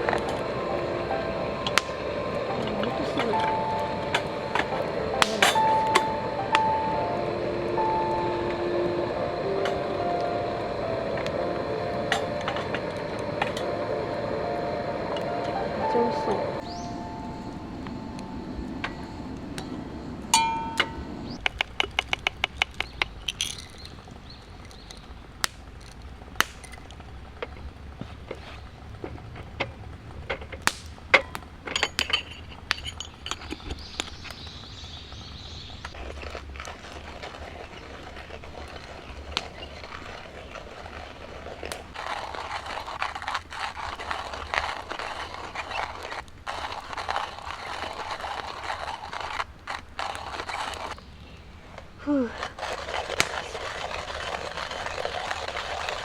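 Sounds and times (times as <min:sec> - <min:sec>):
utensils clicking and clinking: 0:00.0 - 0:08.3, 0:20.4 - 0:24.9
hiss with light crackle: 0:00.0 - 0:56.0.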